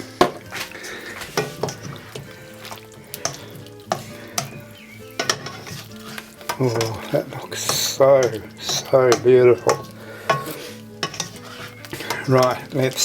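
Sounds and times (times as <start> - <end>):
stir fry sizzling in a pan: 0.0 - 13.0
utensil scraping and tapping pan: 0.0 - 13.0.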